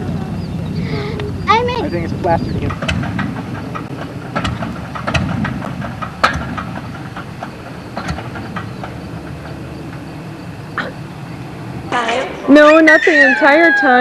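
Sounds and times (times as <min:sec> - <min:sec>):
low engine rumble: 0:00.0 - 0:14.0
irregular clicks and knocks: 0:02.6 - 0:10.1.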